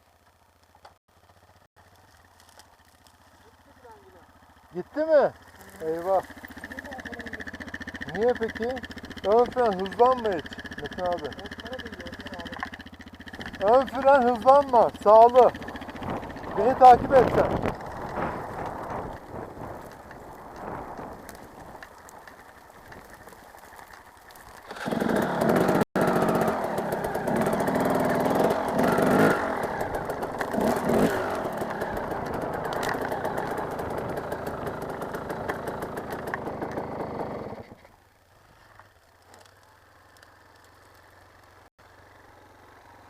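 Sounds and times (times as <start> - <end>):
motocross bike engine revving: 4.2 - 21.0, 24.7 - 37.9.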